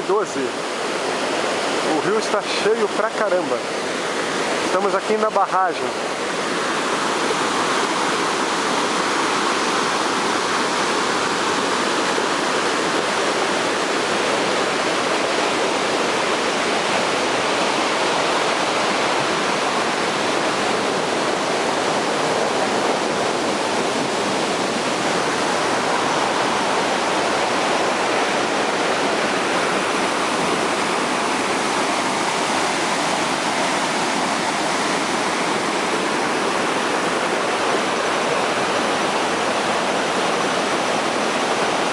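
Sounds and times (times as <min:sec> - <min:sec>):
river pouring over dam: 0:00.0 - 0:41.9.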